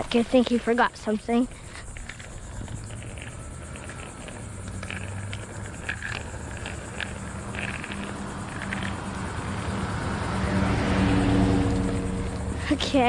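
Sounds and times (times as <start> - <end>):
low vehicle engine hum: 0.0 - 13.0
wind and tyres rushing: 1.5 - 13.0.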